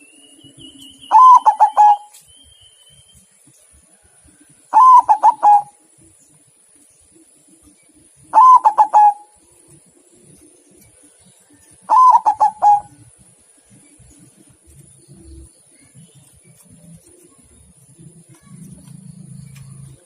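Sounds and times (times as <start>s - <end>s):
dove cooing: 1.1s - 2.2s, 4.7s - 5.8s, 8.2s - 9.4s, 11.8s - 13.2s.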